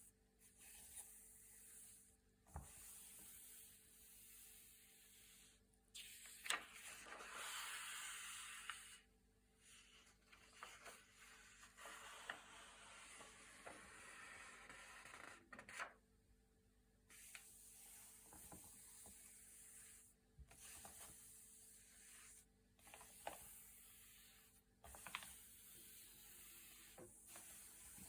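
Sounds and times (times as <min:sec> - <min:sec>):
paper pages turning: 0:06.3 - 0:07.7, 0:24.9 - 0:25.4.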